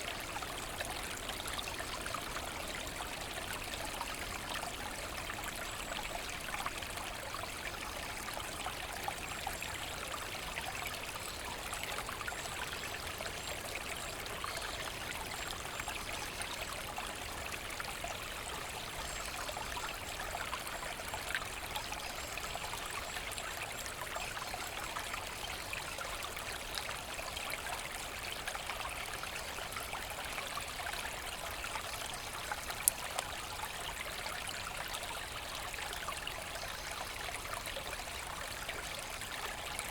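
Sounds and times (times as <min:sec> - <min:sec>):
brook running: 0:00.0 - 0:39.9.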